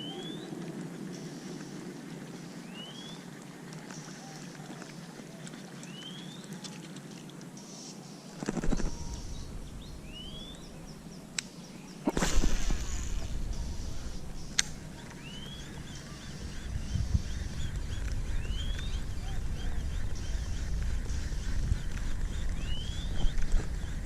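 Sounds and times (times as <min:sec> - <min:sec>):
bird rising chirp: 0:08.4 - 0:24.0
low rumble: 0:08.5 - 0:11.4, 0:12.1 - 0:24.0
sharp clicks: 0:14.4 - 0:14.8.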